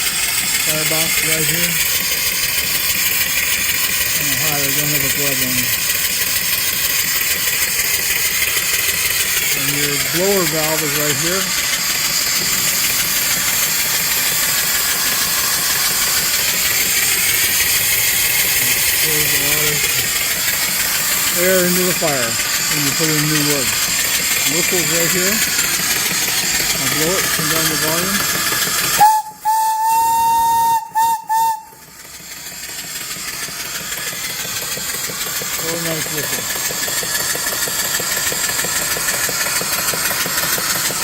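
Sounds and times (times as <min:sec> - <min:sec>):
steam engine running: 0:00.0 - 0:41.0
steam hissing: 0:00.0 - 0:41.0
steam whistle blasts: 0:29.0 - 0:31.8.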